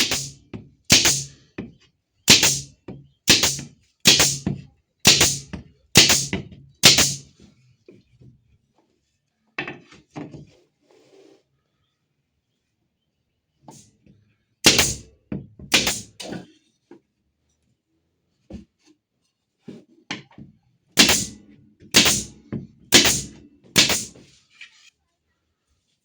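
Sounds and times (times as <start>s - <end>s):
knocks striking wood: 0.0s - 7.2s, 14.7s - 16.2s, 21.0s - 24.2s.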